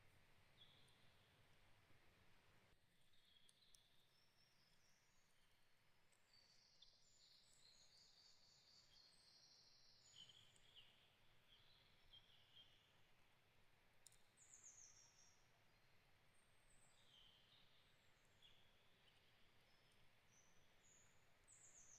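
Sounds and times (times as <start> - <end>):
small birds chirping: 0.4 - 1.6, 2.9 - 13.2, 14.0 - 21.9.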